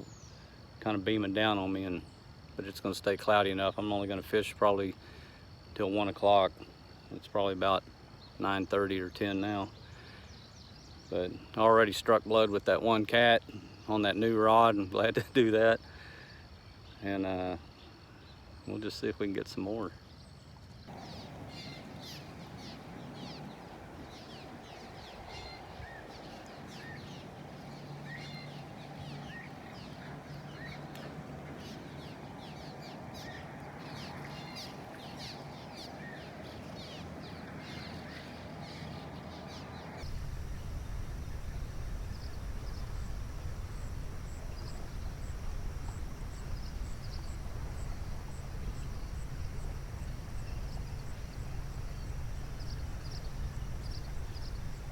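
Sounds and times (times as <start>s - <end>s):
birds chirping: 20.9s - 54.9s
insect pulsing: 20.9s - 54.9s.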